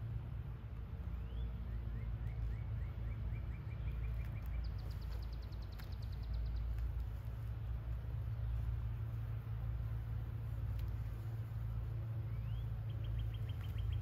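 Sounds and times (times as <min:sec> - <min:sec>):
steady low rumble: 0:00.0 - 0:14.0
small bird singing: 0:01.0 - 0:14.0.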